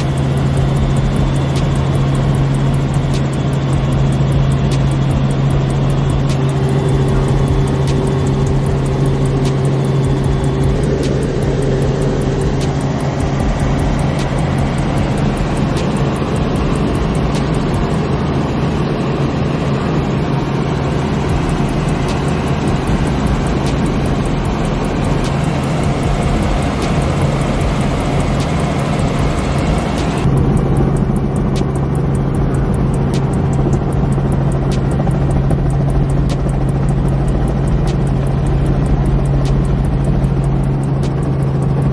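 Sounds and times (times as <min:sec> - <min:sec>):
loud engine drone: 0:00.0 - 0:41.9.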